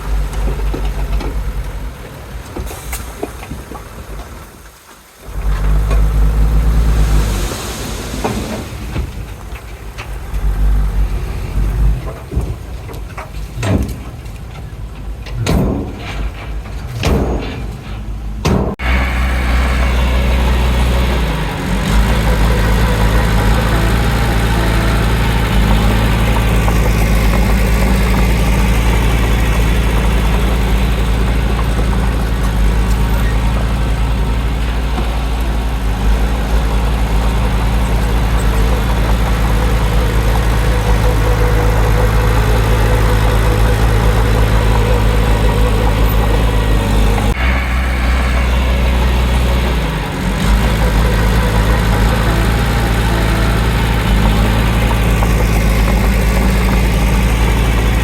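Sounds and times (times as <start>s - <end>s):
heavy diesel engine running: 0.0s - 3.2s, 5.2s - 58.0s.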